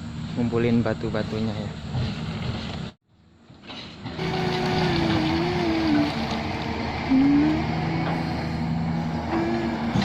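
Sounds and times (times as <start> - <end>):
excavator diesel engine working: 4.0 - 10.0.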